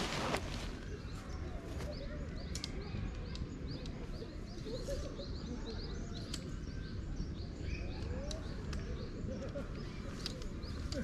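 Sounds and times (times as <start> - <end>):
small birds chirping: 0.0 - 11.0
sharp clicks: 2.4 - 4.0.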